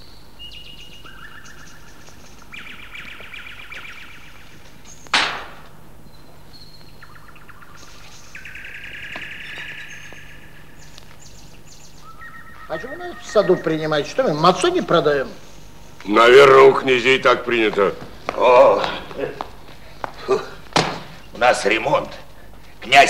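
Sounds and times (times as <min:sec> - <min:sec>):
faint steady hum: 0:00.0 - 0:23.0
songbirds chirping: 0:00.0 - 0:23.0
sharp loud crack: 0:05.1 - 0:05.8.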